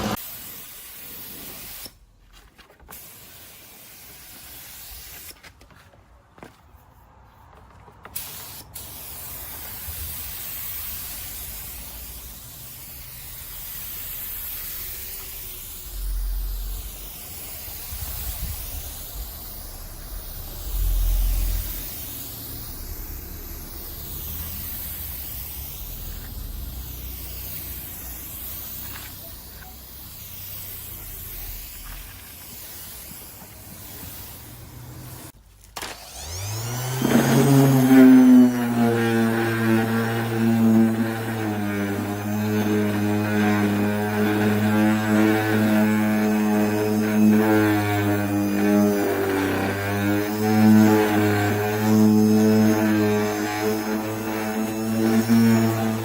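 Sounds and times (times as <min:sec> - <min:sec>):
paint spray gun hissing: 0:00.0 - 0:02.0, 0:02.9 - 0:05.4, 0:08.2 - 0:56.0.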